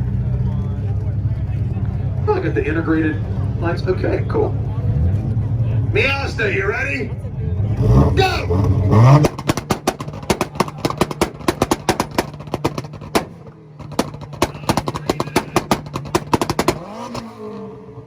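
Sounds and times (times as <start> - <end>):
engine held at fixed pitch: 0.0 - 18.0
exhaust pops and bangs: 8.2 - 17.5.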